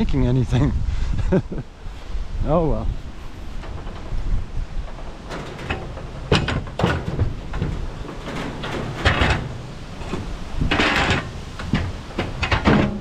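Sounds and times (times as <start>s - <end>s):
metal frame scraping rattle: 2.7s - 13.0s
sharp metal knocks: 3.6s - 13.0s.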